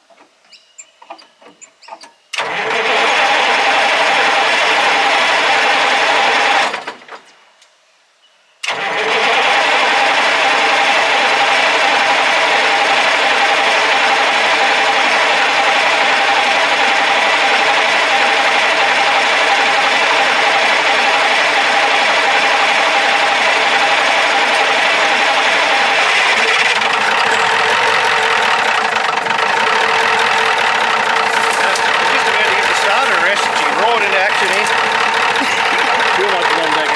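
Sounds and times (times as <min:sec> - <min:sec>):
diesel truck engine running: 0:13.5 - 0:36.9.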